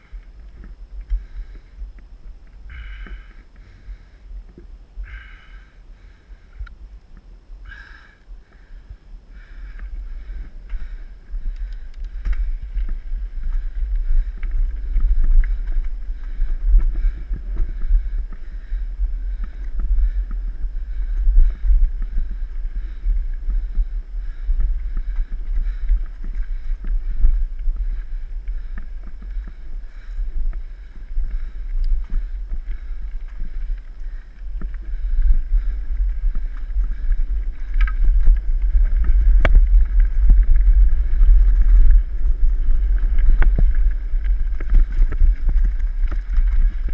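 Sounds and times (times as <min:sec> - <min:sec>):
bike knocking and rattling: 0:00.0 - 0:06.1, 0:09.4 - 0:46.9
wind rumble on microphone: 0:00.0 - 0:46.9.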